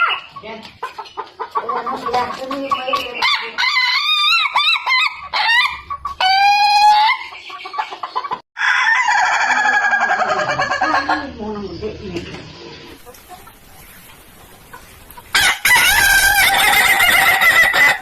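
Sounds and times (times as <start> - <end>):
rooster crowing: 8.6 - 11.2, 15.3 - 18.0.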